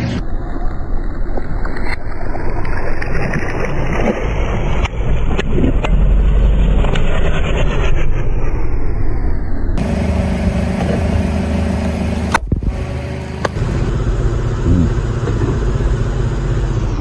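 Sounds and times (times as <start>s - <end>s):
car engine running: 9.8s - 17.0s.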